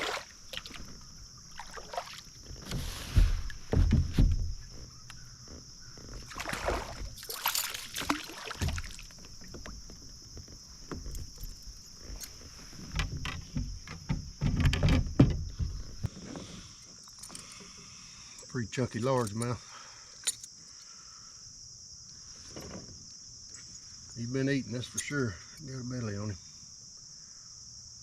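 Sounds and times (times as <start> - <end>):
splashing and knocking in kayak: 0.0 - 16.7
high insect drone: 0.0 - 28.0.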